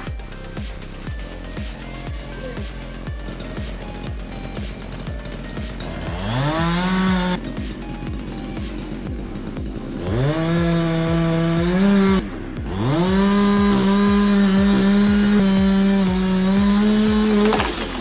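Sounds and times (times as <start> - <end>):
background music beat: 0.0 - 18.0
chainsaw engine revving: 2.4 - 18.0.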